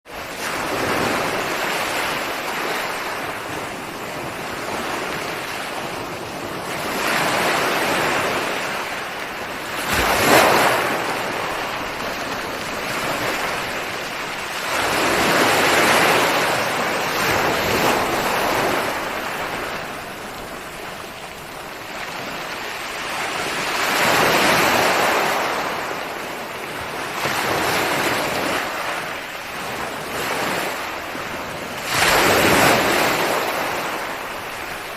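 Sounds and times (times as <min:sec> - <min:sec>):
ocean waves breaking: 0:00.1 - 0:34.9.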